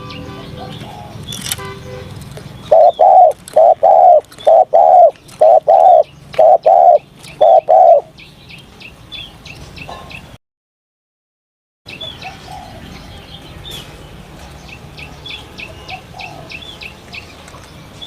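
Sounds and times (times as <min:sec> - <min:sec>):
small birds chirping: 0:00.0 - 0:10.4, 0:11.9 - 0:18.0
dove cooing: 0:00.5 - 0:01.2, 0:02.7 - 0:08.1.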